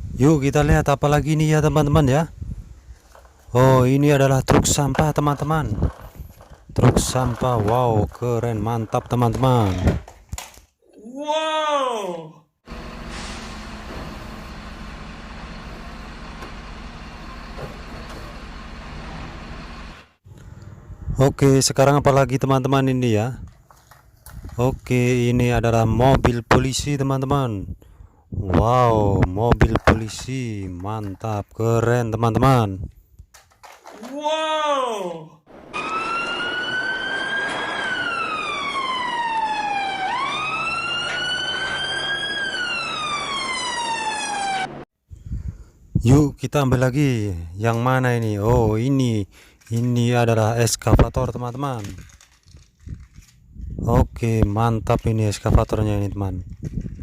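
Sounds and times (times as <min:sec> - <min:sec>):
diesel truck engine running: 0:12.7 - 0:20.8
toy siren wailing: 0:35.8 - 0:44.8.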